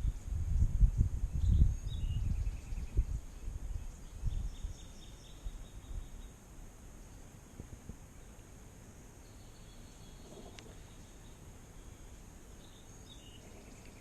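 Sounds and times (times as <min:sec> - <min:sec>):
low rumbling on microphone: 0:00.0 - 0:04.9
faint bird chirps: 0:01.3 - 0:08.5, 0:09.2 - 0:14.0.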